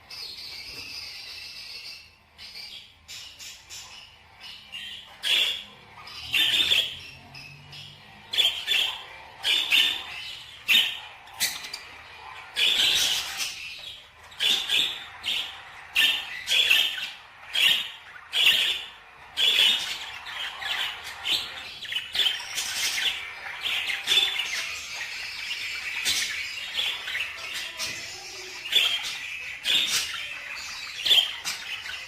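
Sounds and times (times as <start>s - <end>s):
birds calling harshly: 0.0s - 32.0s
birds chattering: 0.0s - 32.0s.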